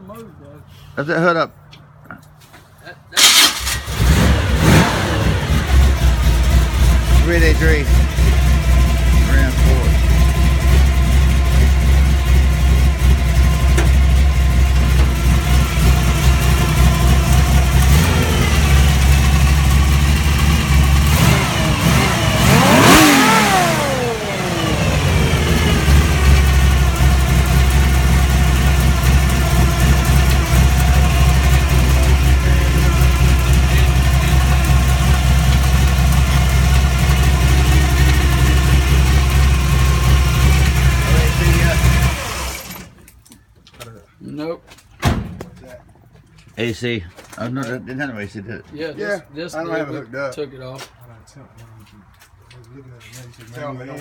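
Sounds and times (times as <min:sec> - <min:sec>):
car engine idling and revving: 0:03.2 - 0:43.2.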